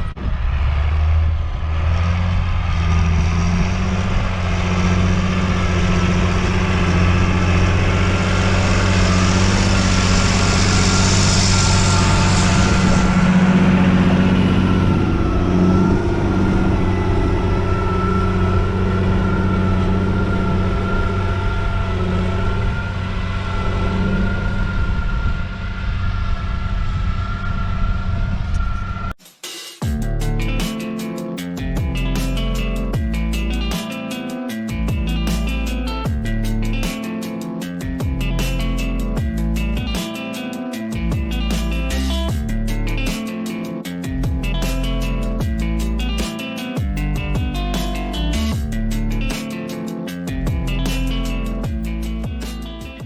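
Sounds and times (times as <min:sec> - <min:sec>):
high whine: 0:00.0 - 0:29.2, 0:29.8 - 0:53.0
tractor diesel engine running: 0:00.0 - 0:29.2, 0:43.8 - 0:49.4, 0:50.3 - 0:53.0.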